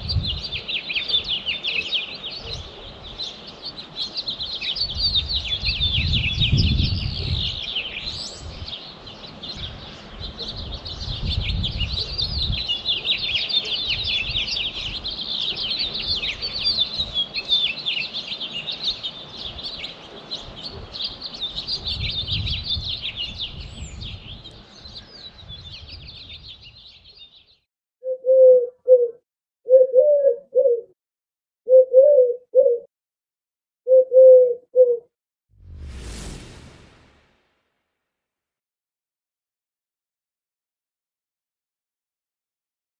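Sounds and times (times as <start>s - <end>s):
mourning dove cooing: 28.0s - 30.9s, 31.7s - 32.9s, 33.9s - 35.1s
low rumbles: 35.6s - 37.6s.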